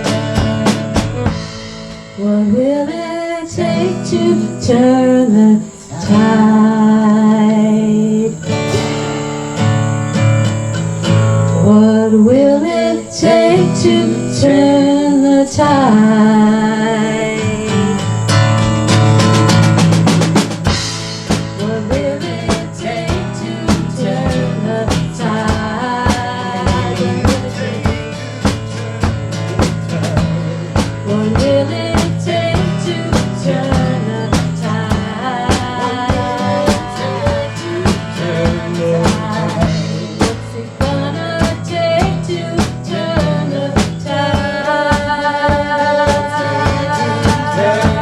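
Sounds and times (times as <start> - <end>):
drum kit beat: 0.0 - 2.2, 8.4 - 11.8, 13.0 - 48.0
strummed acoustic guitar: 0.0 - 48.0
sliding lead melody: 8.5 - 21.6.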